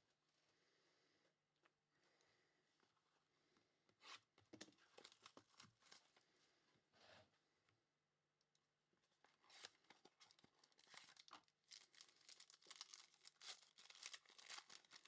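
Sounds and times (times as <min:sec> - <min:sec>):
wrapper crinkling and tearing: 0:10.2 - 0:15.0.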